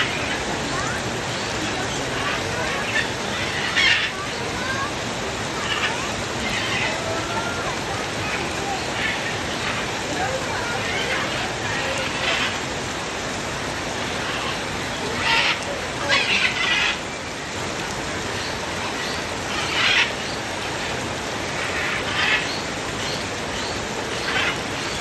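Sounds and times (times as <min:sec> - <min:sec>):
steady rain: 0:00.0 - 0:25.0
parrot calls: 0:02.2 - 0:04.2, 0:19.5 - 0:20.2.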